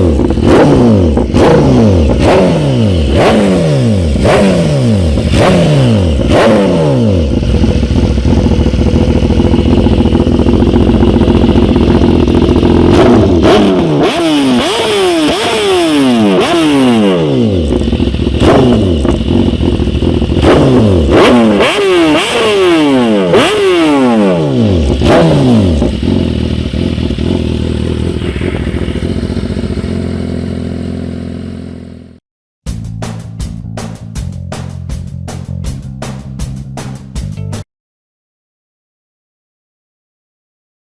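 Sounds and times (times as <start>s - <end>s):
motorcycle engine revving and idling: 0.0s - 37.3s.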